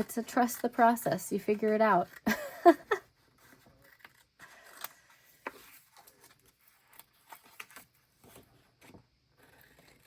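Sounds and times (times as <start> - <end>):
paper and craft supplies handled: 0.0 - 2.4, 3.1 - 10.0.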